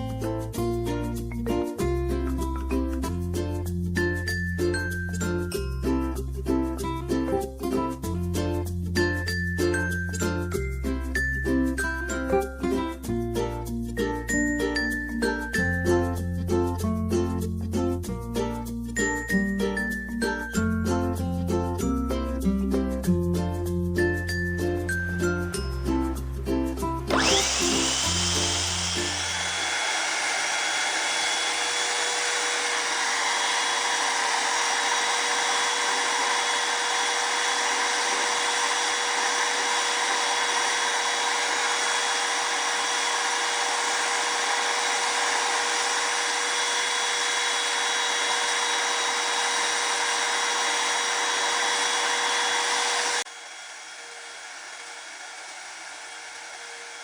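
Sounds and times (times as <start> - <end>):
music: 0.0 - 28.3
paint spray gun motor whine: 27.1 - 57.0.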